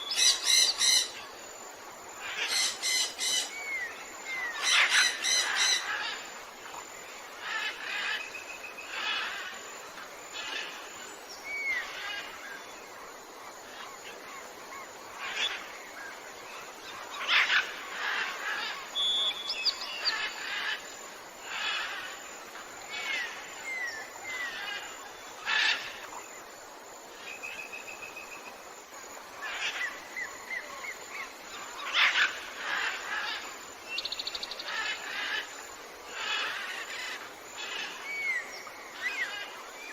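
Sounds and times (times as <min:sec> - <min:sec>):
birds chirping and trilling: 0:00.0 - 0:01.2, 0:02.2 - 0:06.2, 0:16.6 - 0:26.1
background hiss: 0:00.0 - 0:39.9.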